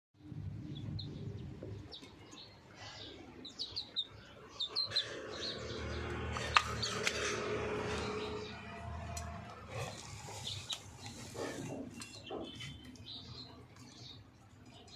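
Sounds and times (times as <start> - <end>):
chicken peeping: 0.6 - 2.6, 3.2 - 5.7, 9.9 - 14.9.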